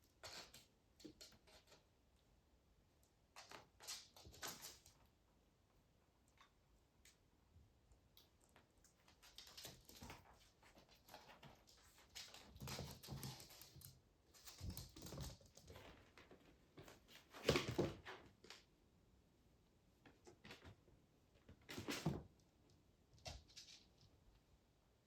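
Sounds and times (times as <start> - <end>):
kittens scrabbling on hard surface: 3.3 - 5.1, 8.6 - 18.6, 21.4 - 22.4, 23.1 - 24.2.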